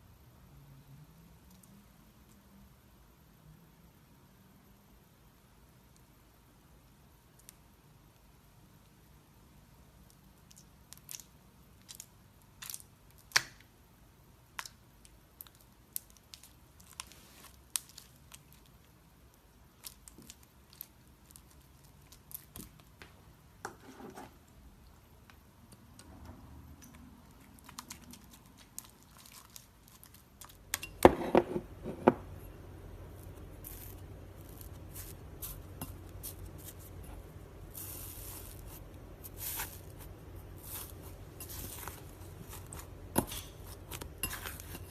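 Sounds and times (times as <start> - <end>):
slime being stretched and squished: 14.5 - 19.0, 26.8 - 30.8, 33.1 - 44.9
steady low hum: 29.8 - 44.9.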